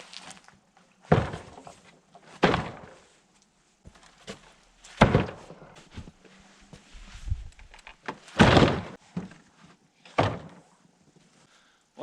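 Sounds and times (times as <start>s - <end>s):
wooden boards thunking: 1.1s - 1.7s, 2.4s - 3.0s, 5.0s - 5.7s, 8.0s - 9.4s, 10.1s - 10.6s
board knocking and scraping: 5.0s - 6.1s.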